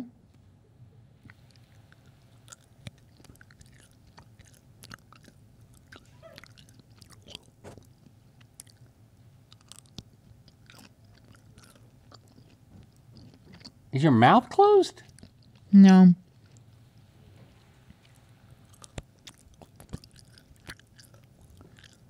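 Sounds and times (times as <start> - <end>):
wet mouth clicks and smacks: 1.2 - 8.9, 9.5 - 13.8, 18.0 - 22.0
open-mouthed chewing: 1.2 - 13.9, 14.9 - 22.0.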